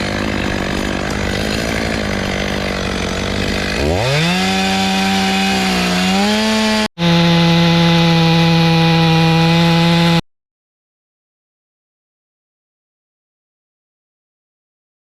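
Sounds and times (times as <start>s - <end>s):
chainsaw cutting wood: 0.0s - 10.2s.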